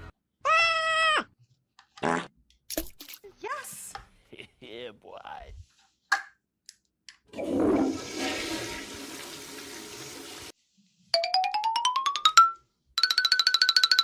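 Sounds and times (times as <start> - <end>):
toilet flushing: 7.3 - 10.5.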